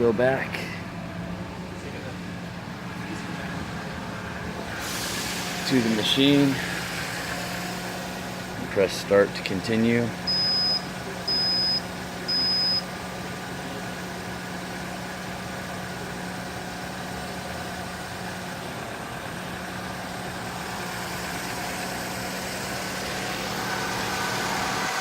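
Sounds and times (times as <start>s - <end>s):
air conditioning hum: 0.0s - 25.0s
car engine idling: 0.0s - 25.0s
short electronic beep: 10.3s - 12.8s.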